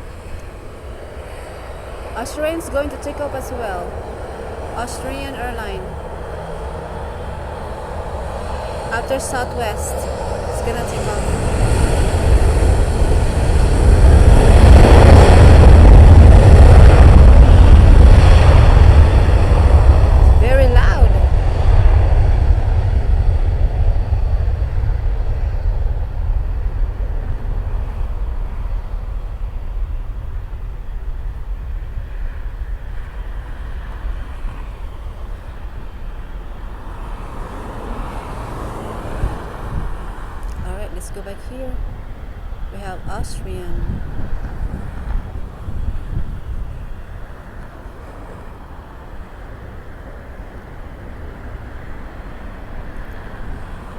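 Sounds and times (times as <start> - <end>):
low rumble: 0.0 - 37.2
jet engines roaring: 0.0 - 53.9.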